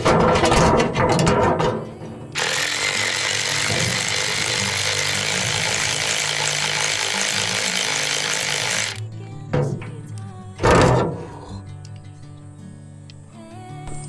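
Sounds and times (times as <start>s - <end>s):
quiet background music: 0.0s - 14.0s
electric ratchet motor whirring: 2.4s - 9.0s.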